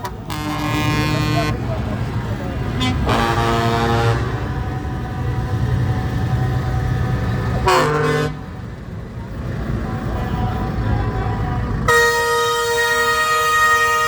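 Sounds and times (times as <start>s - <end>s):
truck horn blast: 0.0s - 1.8s, 2.7s - 6.4s, 7.4s - 8.7s, 10.1s - 14.0s
truck engines running: 0.0s - 14.0s.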